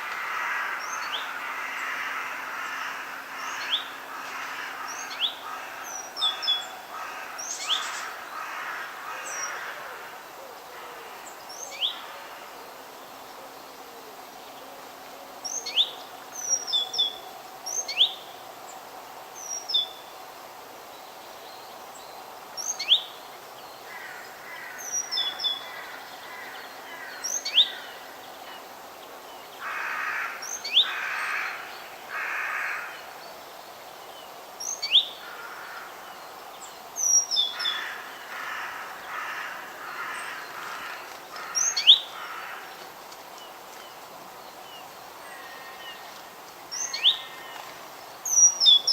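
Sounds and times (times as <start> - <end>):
background hiss: 0.0 - 48.9.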